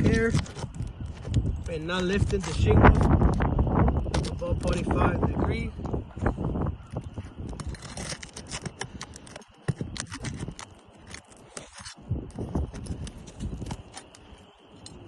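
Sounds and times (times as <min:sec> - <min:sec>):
hand tool scraping roof shingles: 0:00.0 - 0:03.2, 0:07.2 - 0:14.2.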